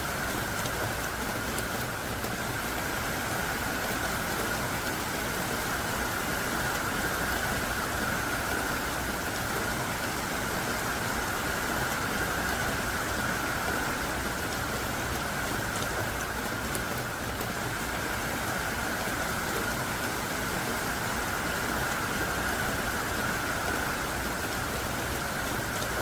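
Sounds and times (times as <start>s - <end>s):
heavy rain: 0.0s - 26.0s.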